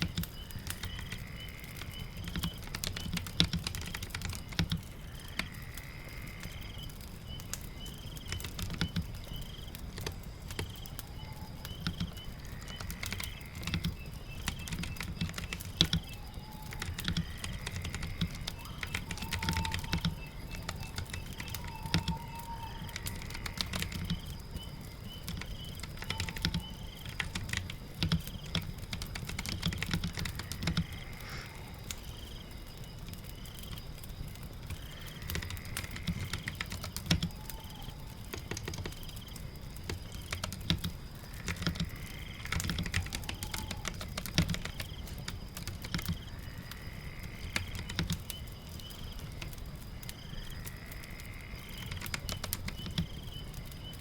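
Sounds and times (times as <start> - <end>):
fire crackling: 0.0 - 54.0
rain: 0.0 - 54.0
keyboard keystrokes: 14.5 - 24.3, 25.2 - 30.9, 35.3 - 39.2, 39.9 - 46.2.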